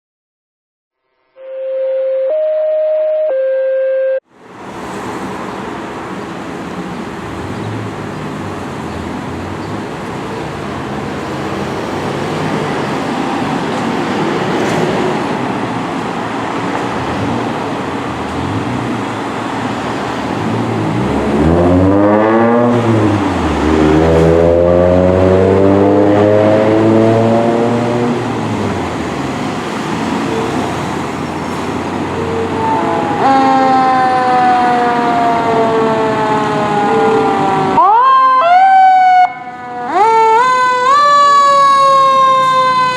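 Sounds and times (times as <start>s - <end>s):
brief electronic tone: 1.1s - 4.2s
road noise: 3.2s - 42.9s
fire engine diesel engine: 4.3s - 42.9s.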